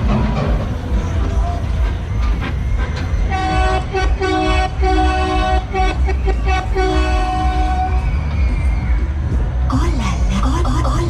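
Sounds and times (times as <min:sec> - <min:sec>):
steady low rumble: 0:00.0 - 0:11.0
train whistle tooting: 0:01.2 - 0:09.2.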